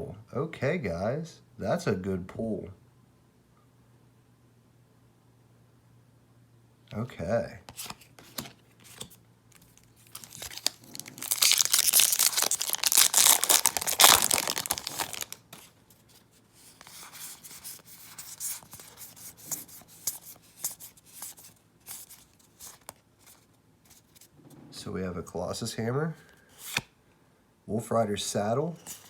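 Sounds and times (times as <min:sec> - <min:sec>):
cards flicking and rustling: 0:07.7 - 0:15.8, 0:26.6 - 0:26.9
foil wrapper tearing and crinkling: 0:09.6 - 0:15.5.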